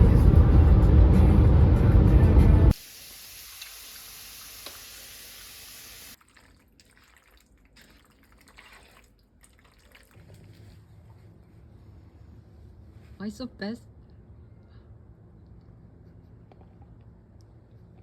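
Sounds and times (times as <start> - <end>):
running water hissing: 2.7 - 6.2.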